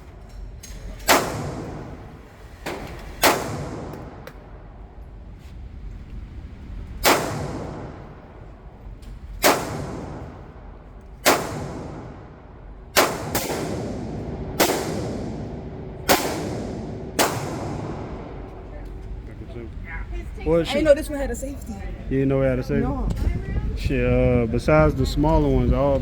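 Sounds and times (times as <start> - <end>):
gunshots with echo: 1.0 - 2.2, 3.2 - 4.2, 7.0 - 8.4, 9.4 - 18.6.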